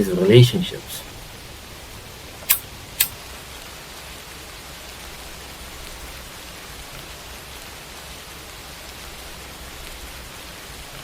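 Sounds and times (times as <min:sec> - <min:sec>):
background hiss: 0:00.0 - 0:04.0, 0:04.7 - 0:08.1.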